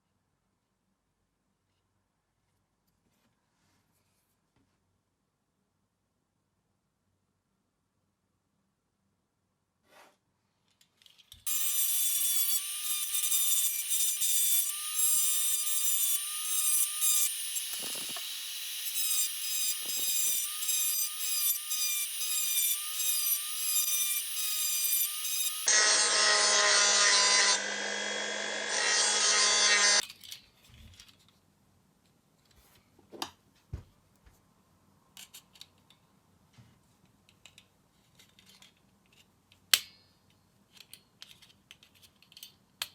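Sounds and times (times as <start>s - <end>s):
small power tool whining: 11.5s - 30.0s
machine sound: 25.3s - 30.0s.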